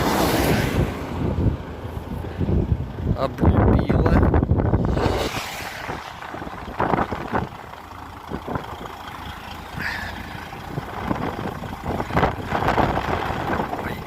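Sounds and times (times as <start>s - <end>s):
truck engine idling: 0.0s - 5.1s, 5.7s - 14.0s
gust of noise: 4.2s - 7.6s.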